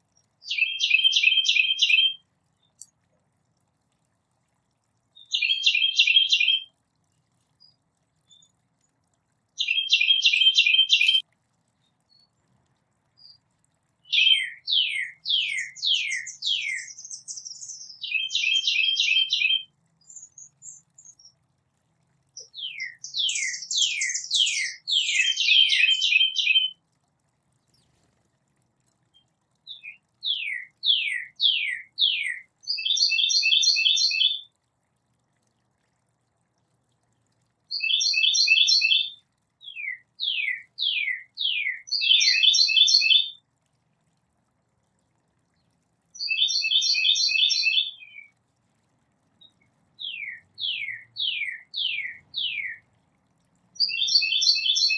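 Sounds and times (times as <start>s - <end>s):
songbird whistles and trills: 0.4s - 2.9s, 5.2s - 6.7s, 9.6s - 11.2s, 14.0s - 21.4s, 22.4s - 26.8s, 29.1s - 34.4s, 37.7s - 43.3s, 46.2s - 48.3s, 49.4s - 52.8s, 53.8s - 54.9s.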